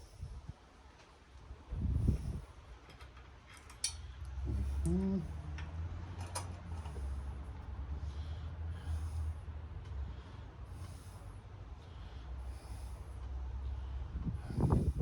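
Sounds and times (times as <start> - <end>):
metal tools clicking and clinking: 2.9 - 4.1.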